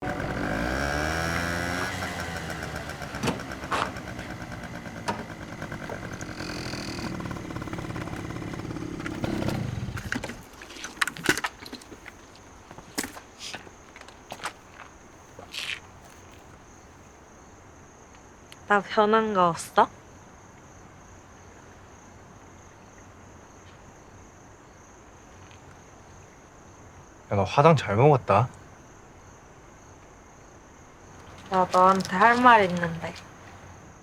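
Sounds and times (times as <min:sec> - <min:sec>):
vehicle engine running: 0:00.0 - 0:16.8, 0:31.2 - 0:33.7
crickets chirping: 0:00.0 - 0:34.0.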